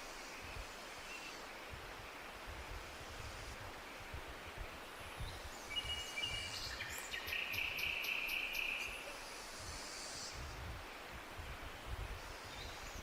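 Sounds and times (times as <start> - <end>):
forest ambience hiss: 0.0 - 13.0
bird singing with ticking trill: 5.2 - 9.0.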